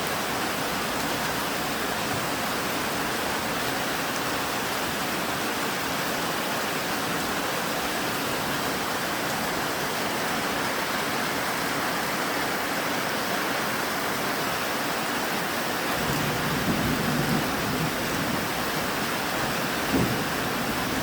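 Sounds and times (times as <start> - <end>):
heavy rain falling: 0.0 - 21.0
thunder rumbling: 16.0 - 21.0.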